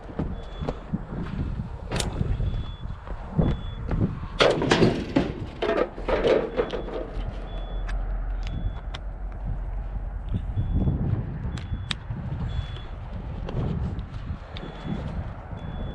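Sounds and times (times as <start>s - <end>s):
low steady rumble: 0.0s - 15.9s
scrap metal clanking: 4.4s - 7.6s.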